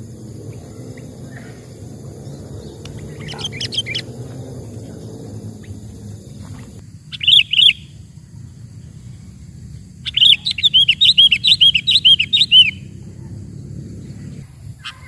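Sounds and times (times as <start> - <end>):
loud quick bird calls: 0.0 - 8.0, 10.0 - 13.4
bird chirping: 0.0 - 15.0
low steady rumble: 0.0 - 15.0.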